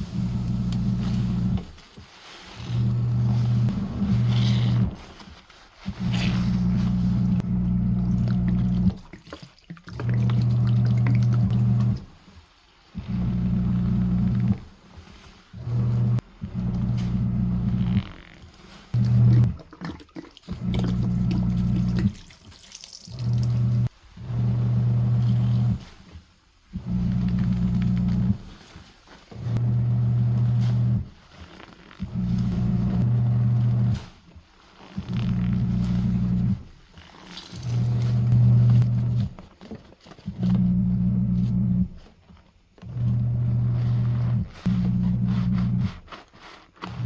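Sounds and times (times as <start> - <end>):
washing machine motor humming: 0.0 - 1.9, 2.5 - 5.1, 5.9 - 9.2, 9.9 - 12.2, 13.0 - 19.8, 20.5 - 22.4, 23.0 - 26.1, 26.7 - 34.2, 34.9 - 39.6, 40.2 - 42.1, 42.9 - 46.0
water sloshing and splashing: 8.2 - 12.4, 18.4 - 24.0.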